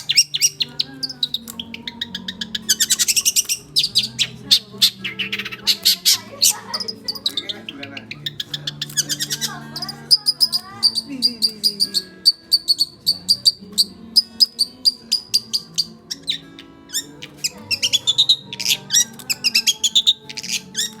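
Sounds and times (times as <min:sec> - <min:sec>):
bird singing high chirps: 0:00.0 - 0:21.0
soft background music: 0:00.0 - 0:21.0.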